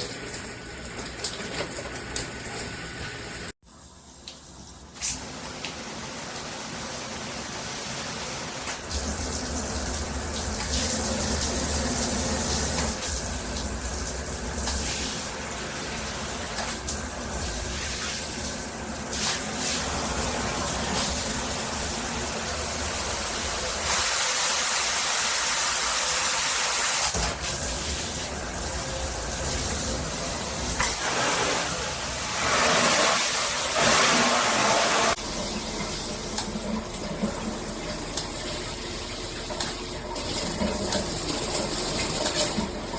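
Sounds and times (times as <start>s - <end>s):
water spraying from shower head: 8.8s - 35.2s.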